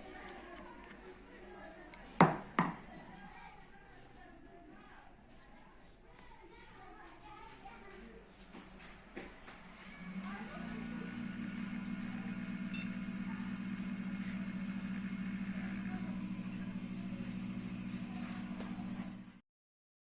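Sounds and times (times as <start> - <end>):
electrical machine hum: 8.1 - 19.4
short high-pitched beep: 12.7 - 13.0.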